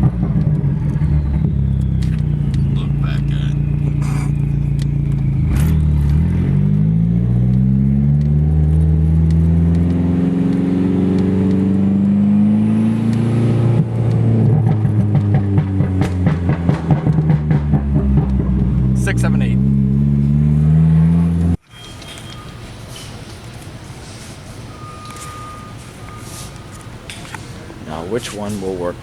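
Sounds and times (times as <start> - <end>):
car engine accelerating: 0.0 - 21.6.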